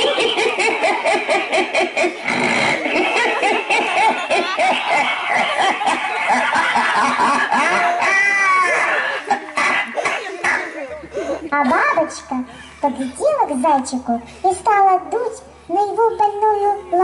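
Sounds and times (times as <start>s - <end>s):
person laughing: 0.0s - 11.5s.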